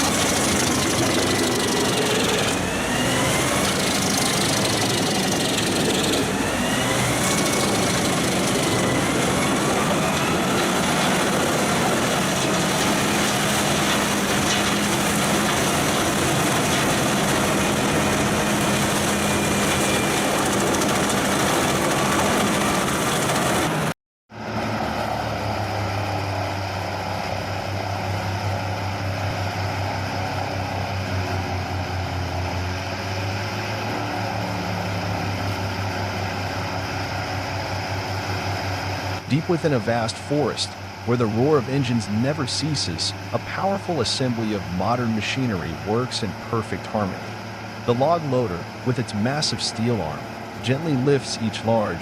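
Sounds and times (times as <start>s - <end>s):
wood chipper grinding: 0.0s - 23.9s
deep engine drone: 0.0s - 52.0s.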